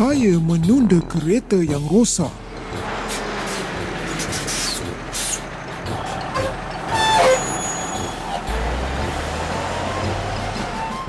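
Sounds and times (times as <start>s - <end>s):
cartoon truck engine rumble: 0.0s - 11.0s
air brake squeal and hiss: 3.1s - 8.5s.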